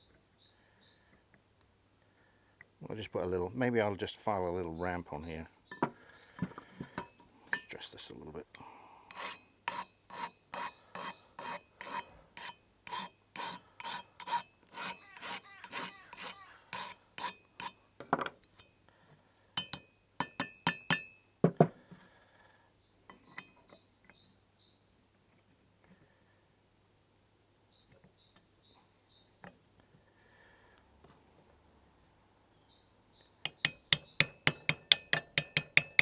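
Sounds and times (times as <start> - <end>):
file scraping metal: 9.1 - 17.8
knock: 21.4 - 21.7.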